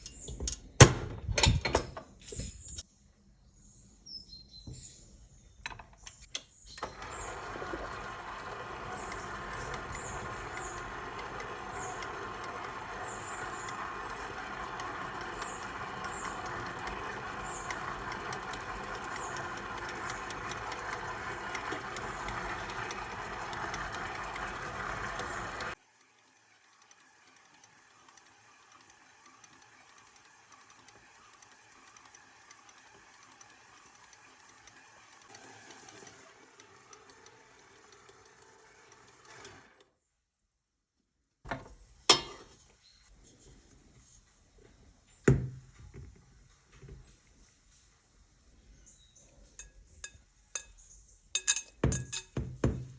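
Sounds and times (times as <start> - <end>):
stand mixer motor running: 6.8 - 39.8.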